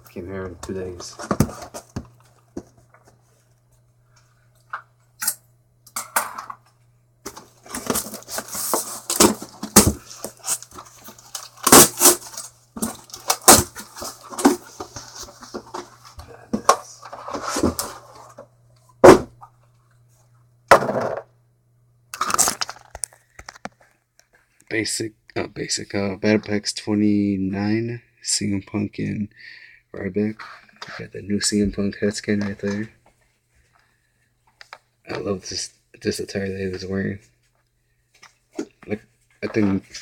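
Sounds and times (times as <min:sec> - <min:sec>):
packaging rustling and scraping: 0:07.3 - 0:18.4, 0:22.2 - 0:24.0.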